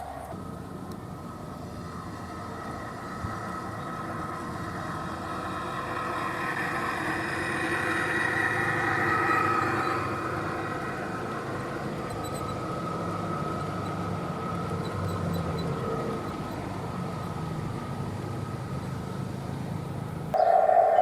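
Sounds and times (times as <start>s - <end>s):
faint high whine: 0.0s - 14.1s, 20.3s - 21.0s
model train engine drone: 0.0s - 21.0s.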